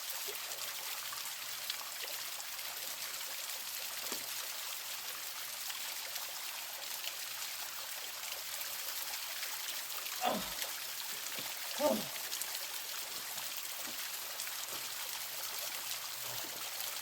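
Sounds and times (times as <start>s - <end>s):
waterfall splashing: 10.2s - 12.4s.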